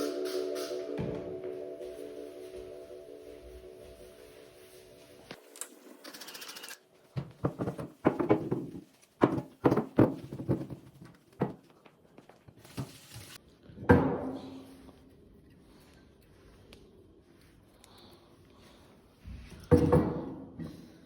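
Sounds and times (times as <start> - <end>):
objects knocking on hard surface: 7.2 - 11.6.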